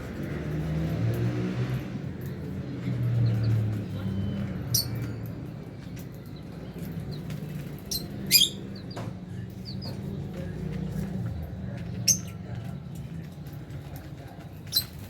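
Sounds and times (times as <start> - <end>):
lovebirds chirping: 6.3 - 10.0, 11.8 - 13.0.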